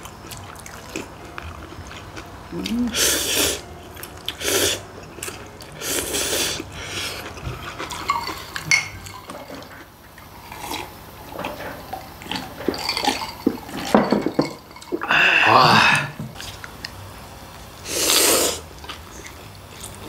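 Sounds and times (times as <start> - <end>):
glass mugs clinking: 7.8 - 9.8, 11.4 - 15.1
noodles slurped: 17.9 - 20.0.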